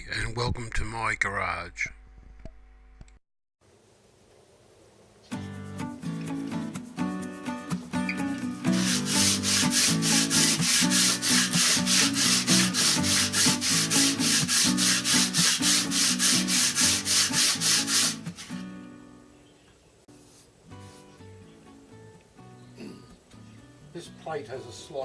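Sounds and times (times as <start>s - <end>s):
background music: 5.4s - 19.3s, 20.8s - 25.0s
metal plate rubbed on abrasive: 8.7s - 18.6s.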